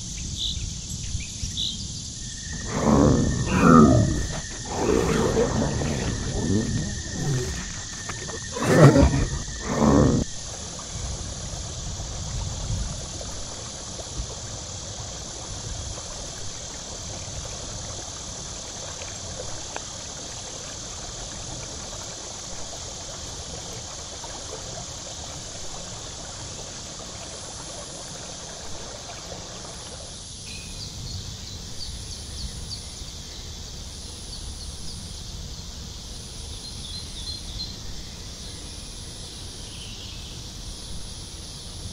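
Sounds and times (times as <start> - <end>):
high drone of insects: 0.0 - 41.9.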